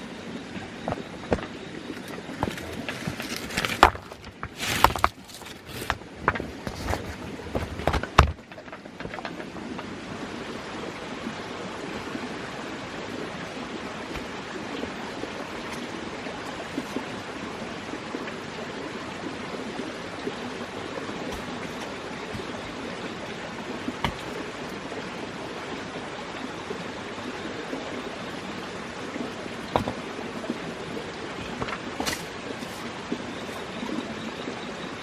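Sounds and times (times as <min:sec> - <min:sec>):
running water rushing: 0:00.0 - 0:35.0
sharp wooden knocks: 0:00.8 - 0:01.6, 0:07.5 - 0:09.9, 0:21.3 - 0:22.8, 0:23.9 - 0:24.5, 0:29.7 - 0:30.2, 0:31.4 - 0:32.8.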